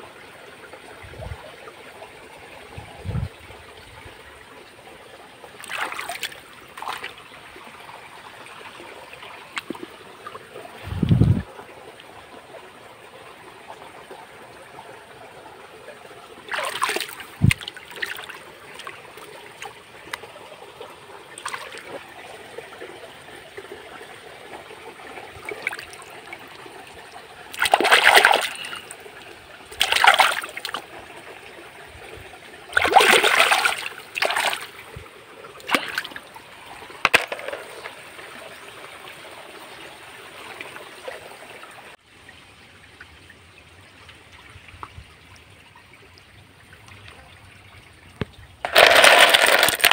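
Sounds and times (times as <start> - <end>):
stream trickling: 0.0 - 49.9
hand splashing in water: 27.6 - 28.8, 32.8 - 34.6.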